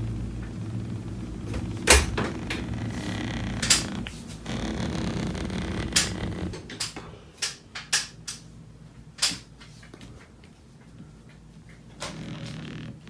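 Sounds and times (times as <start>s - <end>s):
low rumble: 0.0s - 6.6s
hands clicking and knocking on metal track: 1.9s - 8.5s.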